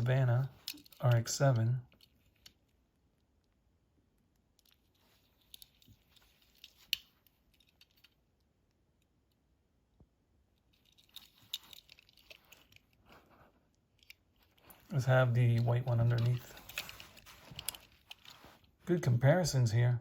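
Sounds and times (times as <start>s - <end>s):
toy cars clicking and rattling: 0.5s - 2.6s, 10.7s - 13.0s.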